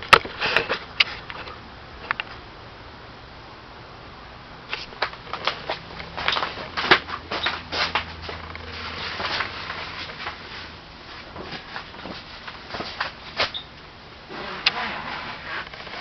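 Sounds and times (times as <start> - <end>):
tent zipper rasping: 14.3 - 16.0.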